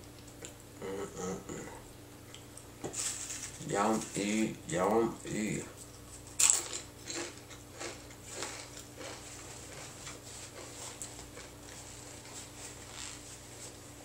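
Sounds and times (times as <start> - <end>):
steady low hum: 0.0 - 14.0
chewing and crunching: 5.2 - 13.2.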